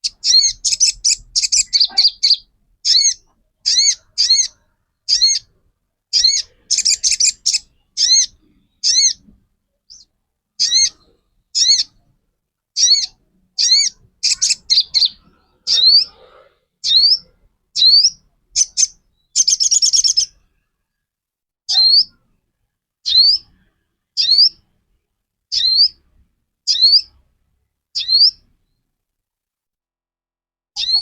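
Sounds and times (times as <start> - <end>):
bird high upswept call: 0.0 - 5.5, 6.2 - 9.2, 11.6 - 11.9, 12.8 - 16.2, 16.8 - 20.3, 21.7 - 22.2, 24.2 - 24.6, 25.5 - 26.0, 26.7 - 27.1, 28.0 - 28.4, 30.8 - 31.0.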